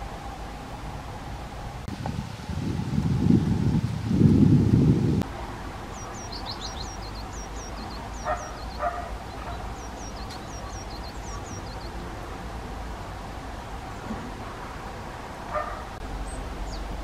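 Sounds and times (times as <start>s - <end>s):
songbird chirps: 5.2s - 14.4s, 15.5s - 17.0s
dog barks: 8.2s - 9.7s, 15.5s - 15.9s.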